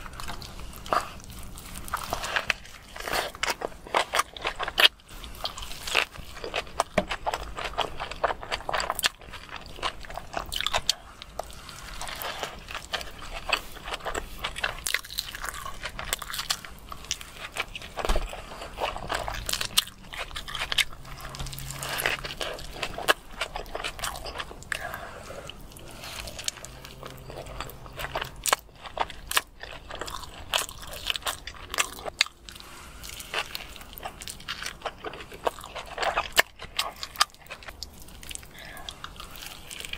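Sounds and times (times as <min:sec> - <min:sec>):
crunchy chewing: 0:00.0 - 0:39.9.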